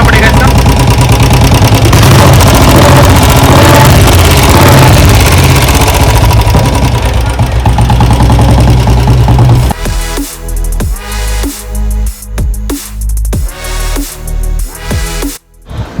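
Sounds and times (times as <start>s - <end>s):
motorcycle engine ticking: 0.0s - 10.0s.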